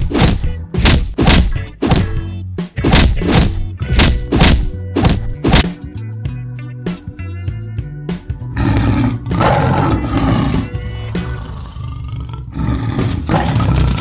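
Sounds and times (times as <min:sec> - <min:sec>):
background music with low notes: 0:00.0 - 0:14.0
lion roaring: 0:08.6 - 0:14.0.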